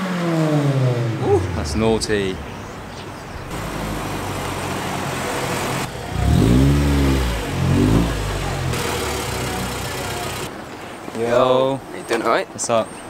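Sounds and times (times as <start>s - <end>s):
car engine revving: 3.5s - 10.5s.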